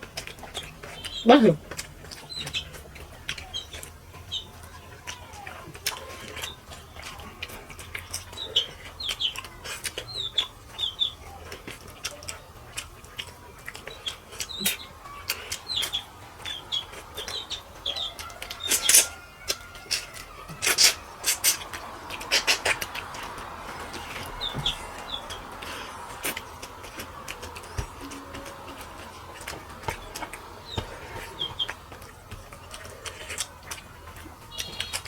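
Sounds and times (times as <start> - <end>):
small birds chirping: 0.0 - 35.0
sharp clicks and smacks: 11.5 - 35.0.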